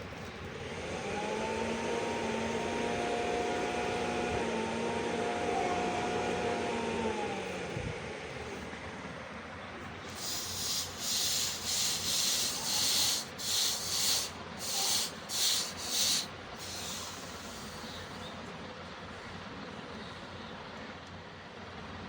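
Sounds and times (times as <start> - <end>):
file rubbing on steel: 10.1 - 18.0.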